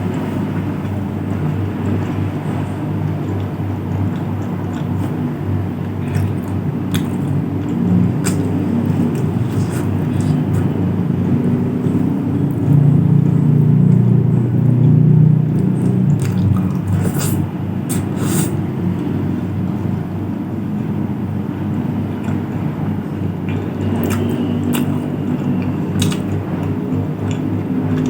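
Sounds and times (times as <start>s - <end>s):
steady low rumble: 0.0s - 28.0s
eating mouth sounds: 1.8s - 18.7s, 23.4s - 28.0s.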